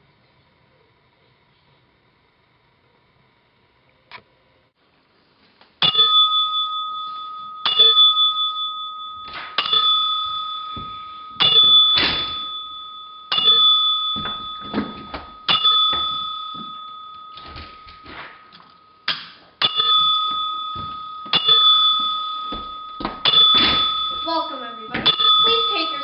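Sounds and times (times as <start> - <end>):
church bell tolling: 5.8 - 26.0
knocks: 13.3 - 18.4.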